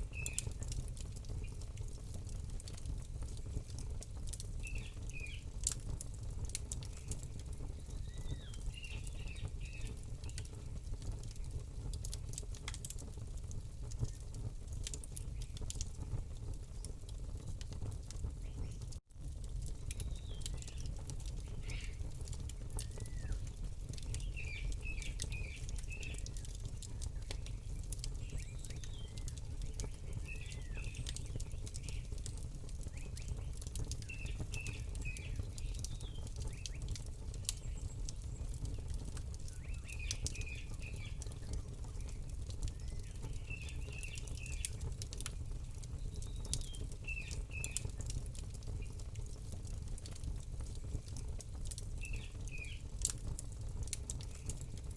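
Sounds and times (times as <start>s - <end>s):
campfire crackling: 0.0s - 54.9s
small bird chirping: 6.8s - 10.6s, 21.5s - 22.1s, 22.8s - 32.2s, 32.8s - 36.9s.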